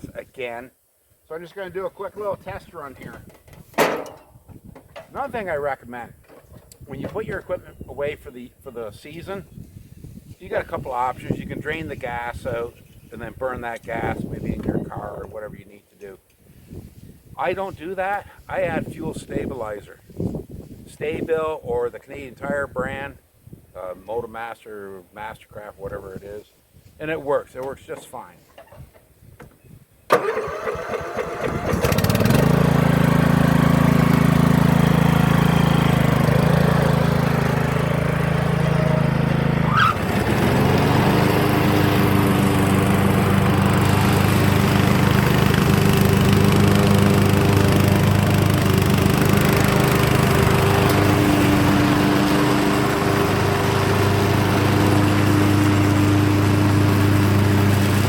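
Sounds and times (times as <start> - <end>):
mower engine starting and running: 30.1 - 58.0.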